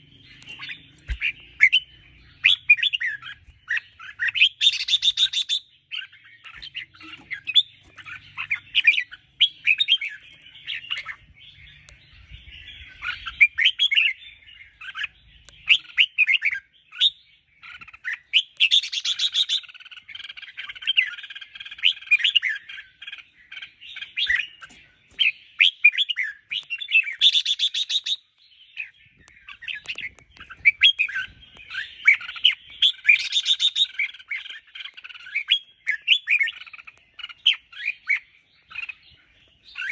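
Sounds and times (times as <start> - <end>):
birds chirping and whistling: 0.0 - 39.9.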